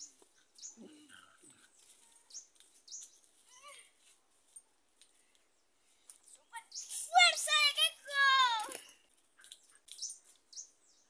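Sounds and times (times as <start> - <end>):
faint bird chirps: 0.0 - 3.9, 5.2 - 7.2.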